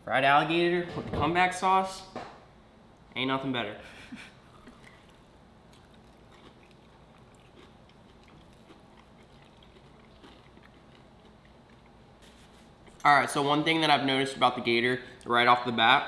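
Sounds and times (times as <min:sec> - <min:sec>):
chewing crisp food: 0:04.5 - 0:13.0.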